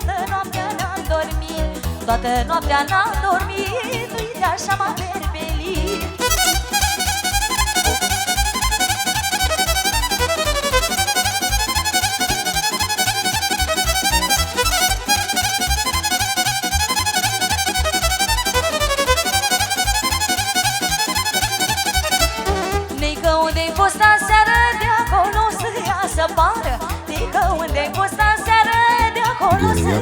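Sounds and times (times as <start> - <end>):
steady bass beat: 5.3 - 25.6, 26.2 - 30.0
fast violin melody: 5.8 - 23.7.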